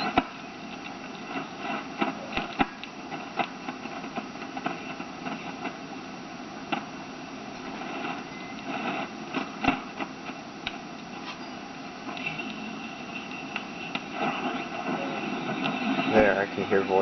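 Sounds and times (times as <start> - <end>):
radio static hiss: 0.0 - 17.0
static crackles: 0.0 - 17.0
faint thin whistles: 11.2 - 11.6.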